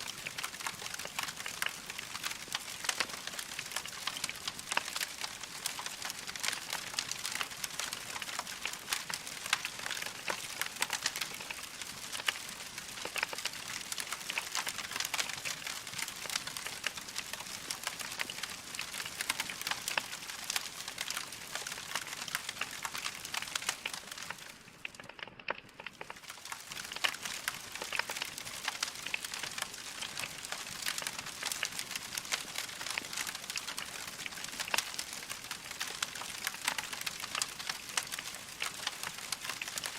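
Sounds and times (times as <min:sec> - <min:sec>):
log fire crackling: 0:00.0 - 0:39.9.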